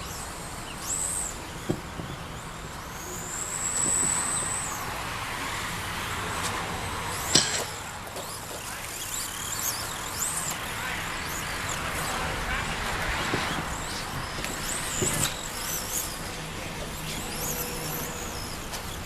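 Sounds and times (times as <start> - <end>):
rc truck motors whining: 0.0 - 19.0.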